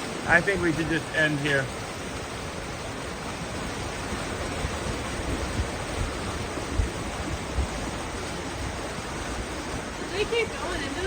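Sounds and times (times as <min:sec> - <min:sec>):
creek and waterfall rushing: 0:00.0 - 0:11.0.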